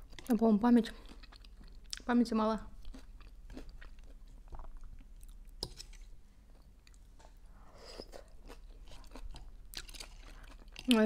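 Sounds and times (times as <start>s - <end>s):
crackly chewing of salad: 0.0s - 11.0s.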